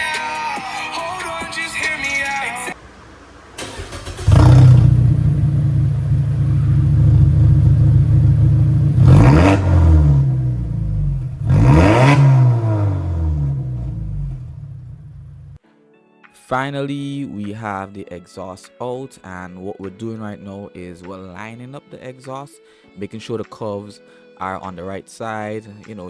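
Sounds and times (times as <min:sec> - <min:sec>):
car engine idling and revving: 0:02.8 - 0:15.6.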